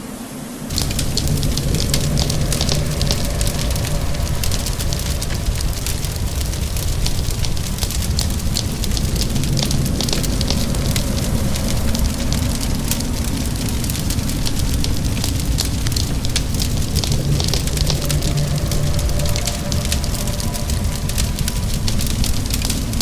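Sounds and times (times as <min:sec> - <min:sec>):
rain hiss: 0:00.0 - 0:23.0
low rumble: 0:00.3 - 0:23.0
fireplace crackling and popping: 0:00.7 - 0:23.0.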